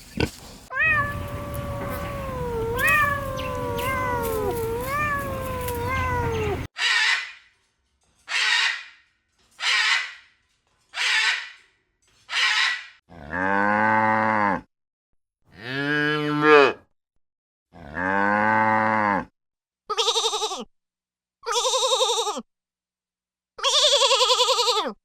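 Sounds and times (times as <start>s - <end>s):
quavering bleat: 0.3s - 6.7s, 19.9s - 20.7s, 21.5s - 22.4s, 23.6s - 25.0s
cow mooing: 1.0s - 6.7s, 13.1s - 14.7s, 17.8s - 19.3s.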